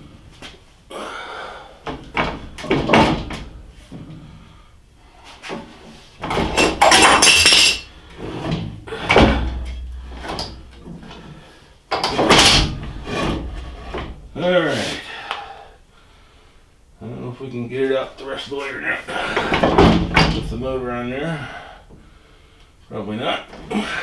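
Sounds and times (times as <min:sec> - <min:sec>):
metal scraping against wood: 0:06.2 - 0:14.4.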